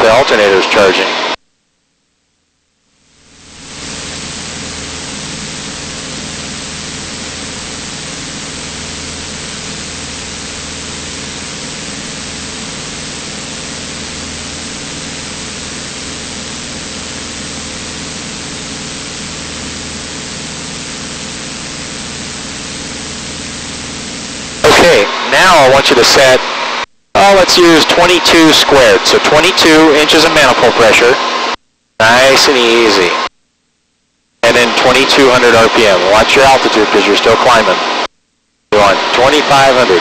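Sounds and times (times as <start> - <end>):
aircraft cabin engine noise: 3.4 - 33.2.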